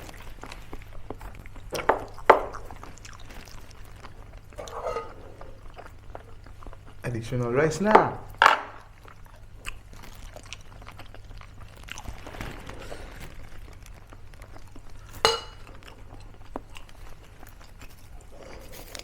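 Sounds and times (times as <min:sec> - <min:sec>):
cutlery and dishes clinking: 0:04.6 - 0:05.6, 0:15.2 - 0:15.8.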